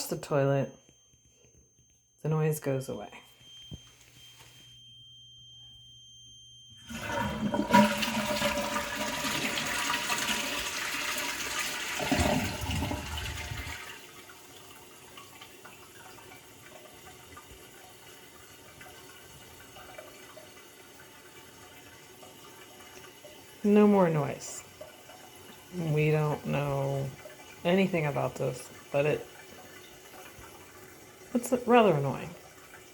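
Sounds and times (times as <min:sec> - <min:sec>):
toilet high-pitched squeal: 0:06.7 - 0:13.9
cistern refilling: 0:06.8 - 0:32.9
toilet flushing: 0:06.8 - 0:32.9.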